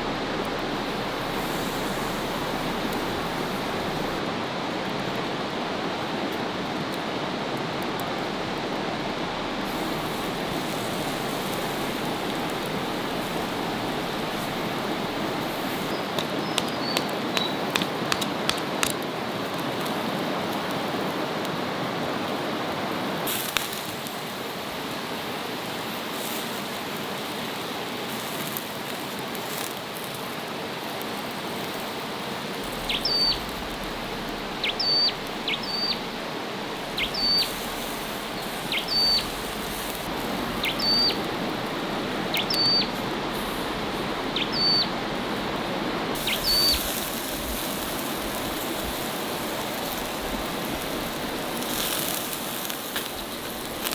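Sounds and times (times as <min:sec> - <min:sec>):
steady rushing noise: 0:00.0 - 0:27.3, 0:30.2 - 0:53.9
bird chirping: 0:15.8 - 0:18.3, 0:32.7 - 0:41.3, 0:42.2 - 0:43.0, 0:44.3 - 0:44.9, 0:46.2 - 0:46.9.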